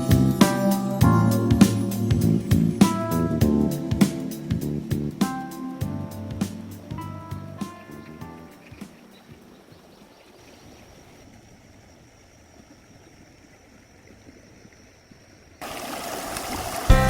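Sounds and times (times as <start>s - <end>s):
stream running water: 6.5s - 17.0s
loud rush of water: 15.6s - 17.0s.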